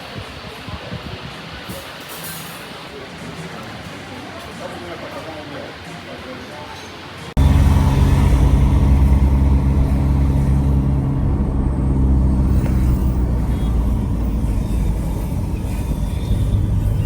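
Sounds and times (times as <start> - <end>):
vehicle engine humming: 7.4 - 17.0.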